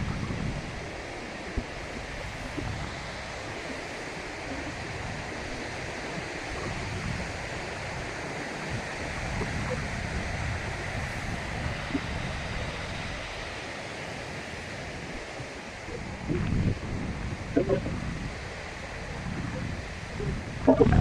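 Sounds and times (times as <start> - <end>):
wind buffeting microphone: 0.0 - 13.6, 14.8 - 21.0
surf washing on beach: 0.0 - 21.0.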